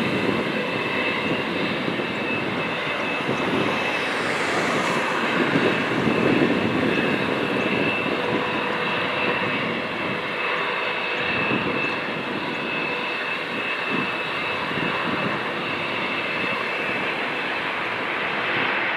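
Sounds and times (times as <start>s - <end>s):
high engine whine: 0.0s - 18.4s
jet engines rumbling: 0.0s - 18.9s.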